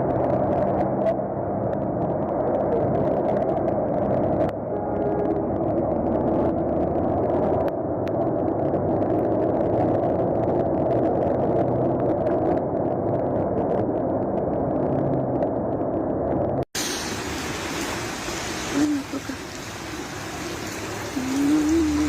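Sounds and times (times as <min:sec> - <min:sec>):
muffled vehicle rumble: 0:00.0 - 0:16.7.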